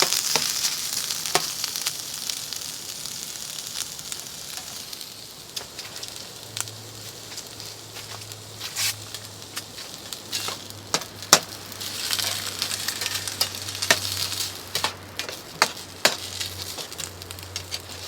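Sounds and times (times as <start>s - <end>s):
meat sizzling in a frying pan: 0.0s - 18.0s
utensil scraping and knocking pan: 10.3s - 18.0s.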